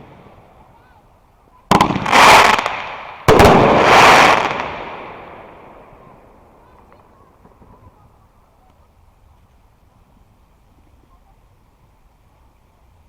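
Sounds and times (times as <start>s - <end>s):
fireworks rushing crackle: 0.0s - 12.6s
fireworks bang: 1.7s - 8.0s.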